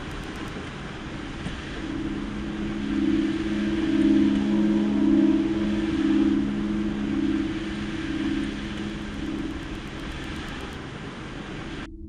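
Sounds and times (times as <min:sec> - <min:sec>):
low two-note hum: 0:01.6 - 0:10.8.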